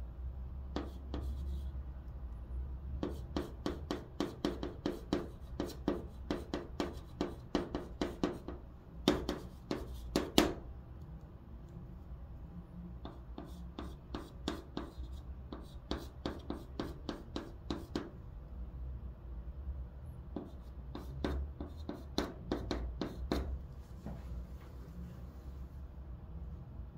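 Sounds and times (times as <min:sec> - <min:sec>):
chalk tapping and scraping on blackboard: 0:00.7 - 0:01.8, 0:03.0 - 0:10.6, 0:13.0 - 0:18.1, 0:20.3 - 0:24.2.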